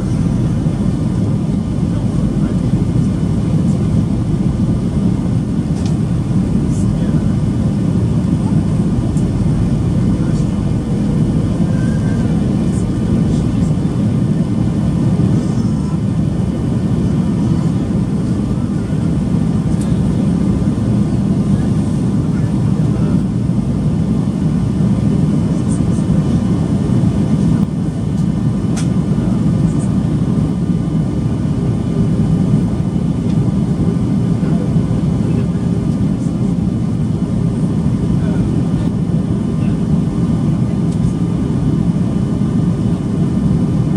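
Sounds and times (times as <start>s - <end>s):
jet engine cabin rumble: 0.0s - 43.9s.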